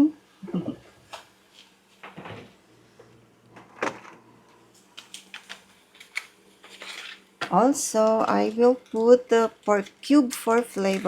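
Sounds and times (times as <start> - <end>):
kitchen utensils knocking and clicking: 8.0 - 11.0.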